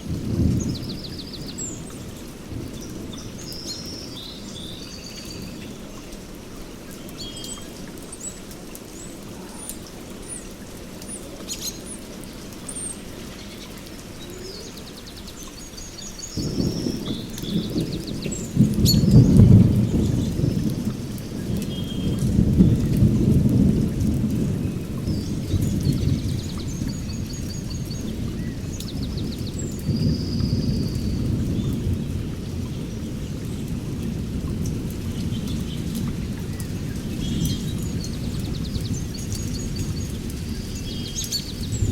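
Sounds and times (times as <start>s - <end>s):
deep rumble of thunder: 0.0s - 5.5s, 16.1s - 41.9s
steady rain: 0.0s - 41.9s
birds chirping: 6.7s - 22.8s.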